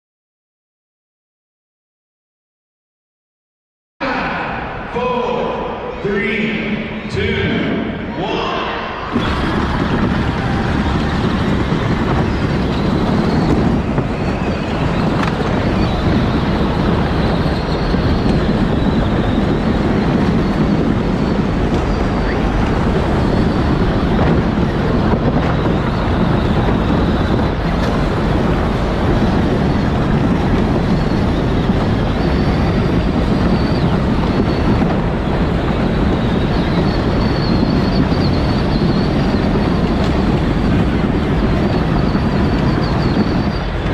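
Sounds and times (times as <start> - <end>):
faint high whine: 4.0 - 43.9
toy car electric drive rumble: 9.2 - 43.9.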